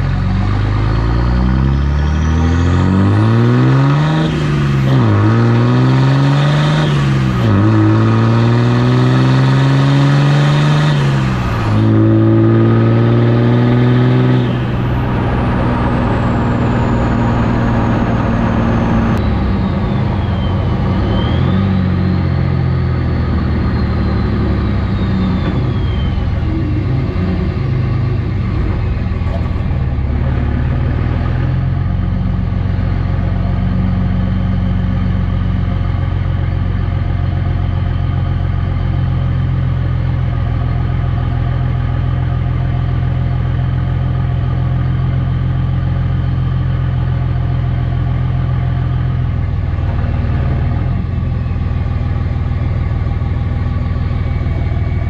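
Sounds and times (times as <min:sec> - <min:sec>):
diesel truck engine accelerating: 0:00.0 - 0:55.0
turbo whistle: 0:15.9 - 0:27.6.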